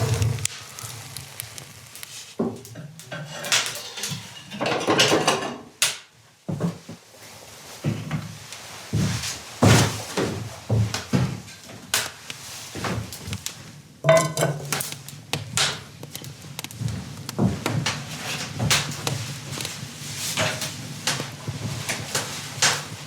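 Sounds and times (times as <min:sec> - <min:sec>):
knocks and clatter of objects: 0:02.4 - 0:05.7, 0:14.0 - 0:23.0.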